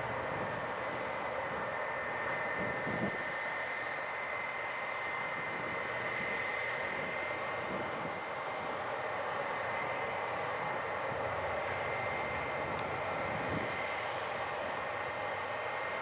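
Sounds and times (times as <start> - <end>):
jet engines running with high whine: 0.0 - 16.0.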